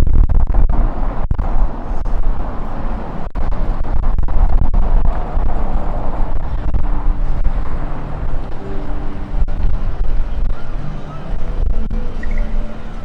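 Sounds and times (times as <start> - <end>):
wind gusting over microphone: 0.0 - 13.0
faint street ambience: 0.7 - 13.0
distant tones: 4.7 - 13.0.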